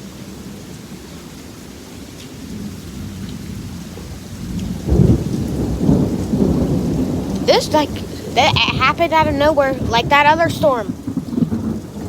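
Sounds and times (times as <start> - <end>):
steady rain: 0.0 - 12.0
thunder rumble and boom: 3.0 - 12.0.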